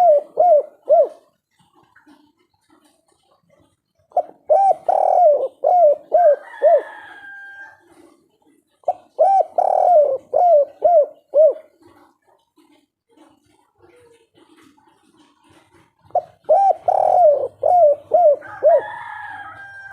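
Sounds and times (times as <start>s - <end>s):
dove cooing: 0.0s - 19.9s.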